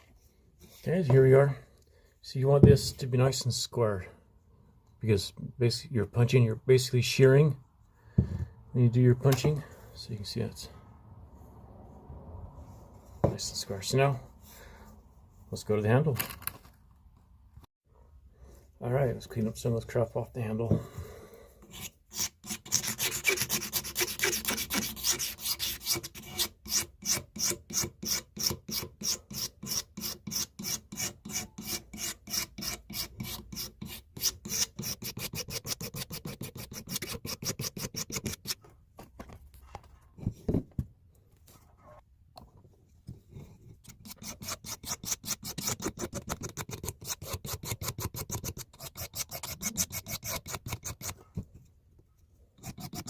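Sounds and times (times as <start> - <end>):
hand sanding rubbing strokes: 21.8 - 26.4.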